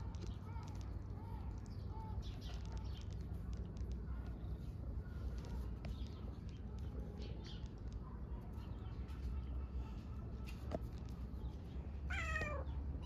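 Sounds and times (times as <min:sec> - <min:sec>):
faint bird calls: 0:00.0 - 0:08.0
low outdoor rumble: 0:00.0 - 0:13.0.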